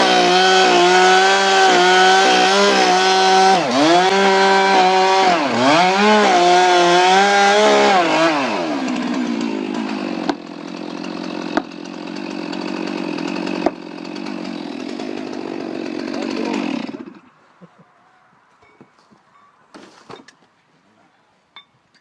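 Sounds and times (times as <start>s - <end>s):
chainsaw engine revving: 0.0s - 17.4s.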